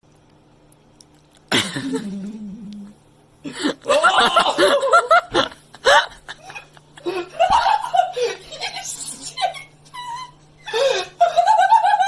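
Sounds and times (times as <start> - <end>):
laughter-like cries: 3.5 - 12.0.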